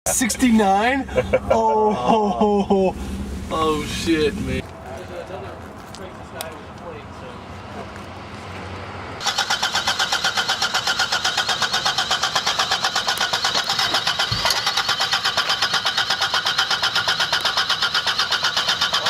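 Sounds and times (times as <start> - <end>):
starter motor cranking engine: 9.2 - 19.0.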